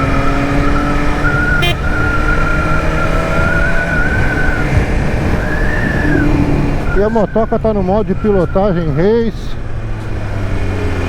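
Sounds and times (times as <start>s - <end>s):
motorcycle engine running: 0.0s - 3.1s
wind rush: 0.0s - 8.9s.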